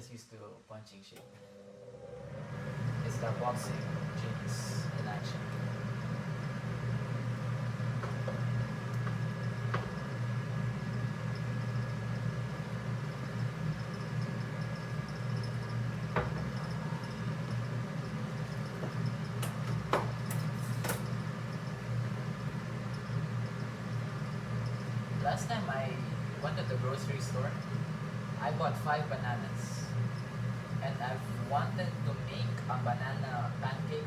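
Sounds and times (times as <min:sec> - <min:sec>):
low mechanical hum: 0:00.0 - 0:34.0.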